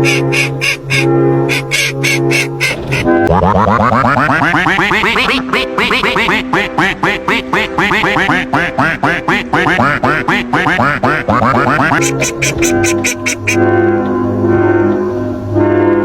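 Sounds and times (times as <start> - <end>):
duck quacking: 0.0 - 13.7
background music: 0.0 - 16.0.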